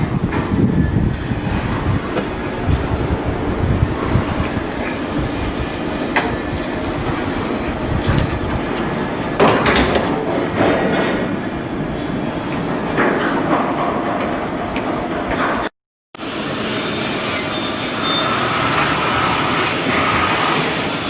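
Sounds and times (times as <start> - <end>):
industrial rumble: 0.1 - 15.6
metallic knocks and clanks: 6.2 - 10.8.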